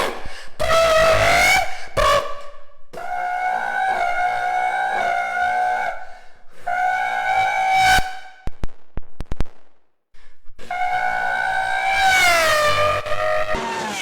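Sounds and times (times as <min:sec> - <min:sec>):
exhaust pops and crackles: 0:08.4 - 0:09.9
car engine revving high: 0:10.9 - 0:14.0.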